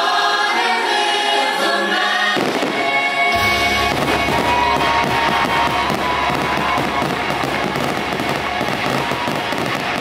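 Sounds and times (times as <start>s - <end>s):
choir singing: 0.0s - 9.6s
fireworks launching and bursting: 2.3s - 10.0s.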